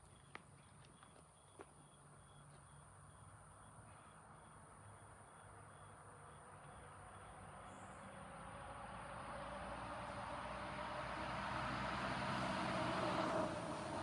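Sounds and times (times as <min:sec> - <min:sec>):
vehicle hiss: 0:11.7 - 0:14.0.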